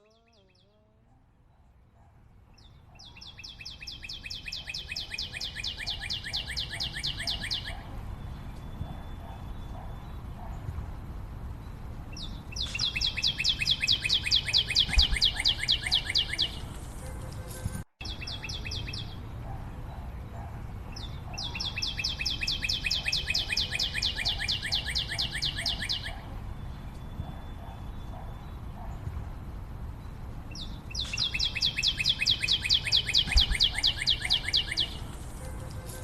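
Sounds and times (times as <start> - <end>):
bird trilling: 3.0 - 7.9, 12.5 - 16.7, 21.0 - 26.3, 30.9 - 35.1.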